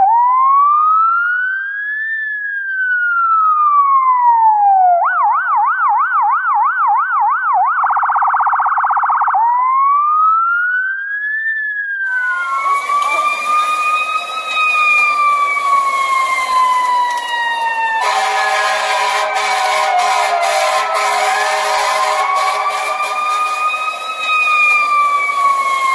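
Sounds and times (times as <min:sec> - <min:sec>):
electronic siren cycling tones: 0:00.0 - 0:25.9
siren wailing slowly: 0:00.0 - 0:25.9
road noise: 0:12.1 - 0:25.9.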